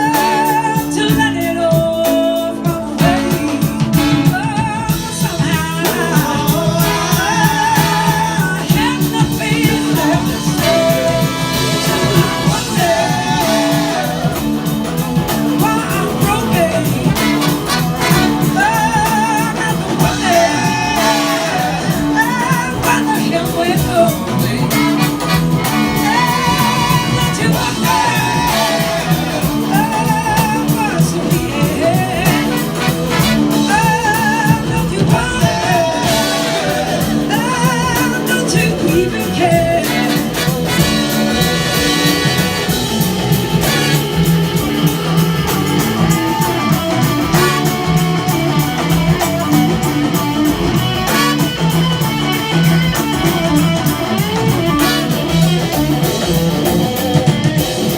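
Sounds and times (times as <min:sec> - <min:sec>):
bending lead guitar notes: 0:00.0 - 0:57.9
rock band playing: 0:00.0 - 0:57.9.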